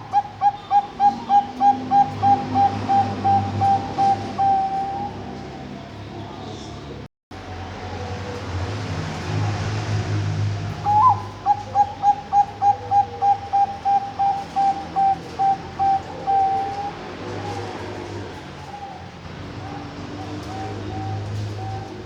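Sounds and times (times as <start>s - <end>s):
dove cooing: 0.0s - 5.7s, 10.7s - 22.0s.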